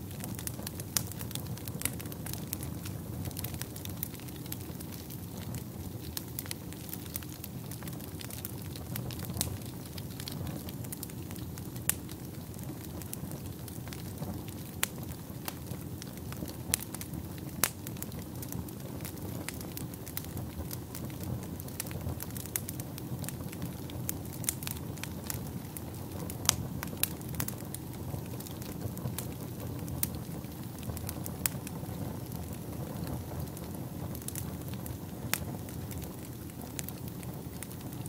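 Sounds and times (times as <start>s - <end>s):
fire flames rumbling: 0.0s - 38.0s
wood fire crackling and popping: 0.0s - 38.0s.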